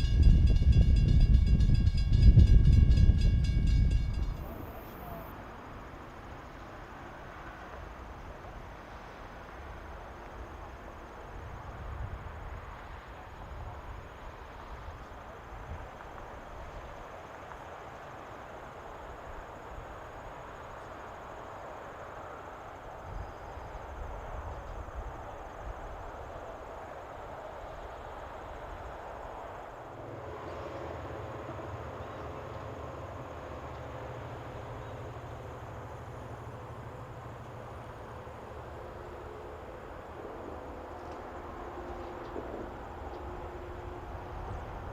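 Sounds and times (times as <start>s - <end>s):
faint high insect trill: 0.0s - 5.4s, 10.0s - 44.9s.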